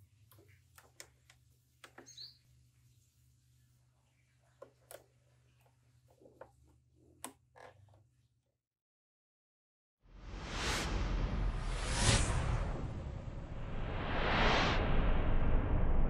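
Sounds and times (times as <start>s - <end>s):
faint chirp: 1.9s - 4.6s.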